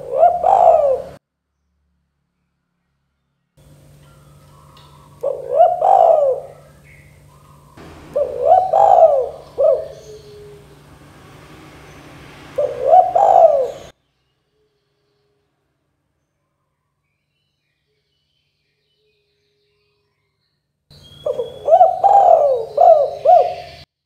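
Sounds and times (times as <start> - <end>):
dove cooing: 0.0 - 1.2, 4.0 - 13.9, 21.1 - 23.9.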